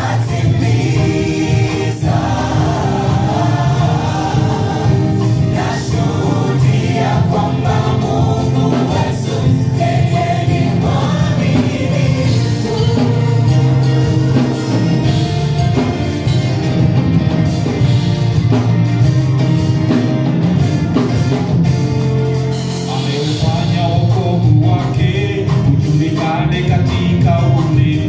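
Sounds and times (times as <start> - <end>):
people singing: 0.0 - 15.2, 22.8 - 28.0
gospel band with drum kit: 0.0 - 28.0.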